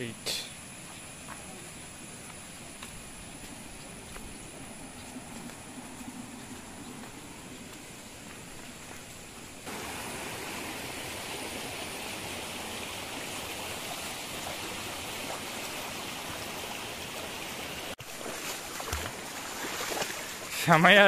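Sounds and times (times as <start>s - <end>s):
river water rushing over rocks: 9.7s - 20.5s.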